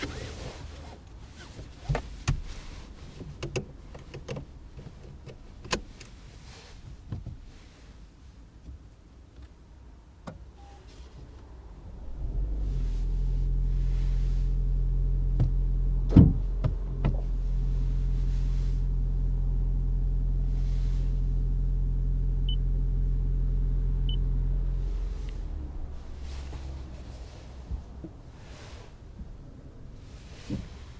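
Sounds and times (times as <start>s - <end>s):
car engine humming: 0.0s - 6.3s, 10.3s - 30.9s.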